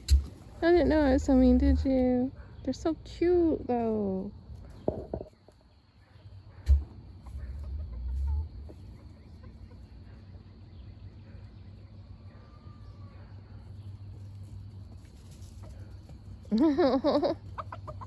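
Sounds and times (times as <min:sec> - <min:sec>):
chickens clucking: 0:00.0 - 0:02.7, 0:04.5 - 0:18.0
low rumble: 0:06.6 - 0:10.2.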